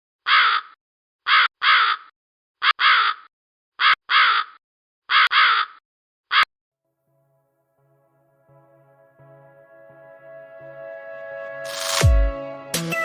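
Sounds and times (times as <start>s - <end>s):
crow cawing: 0.2s - 6.5s.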